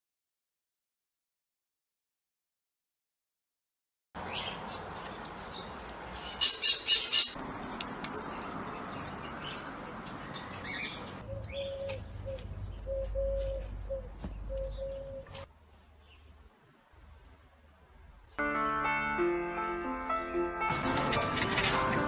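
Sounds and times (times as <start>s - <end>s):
bird squawking: 6.2s - 7.4s.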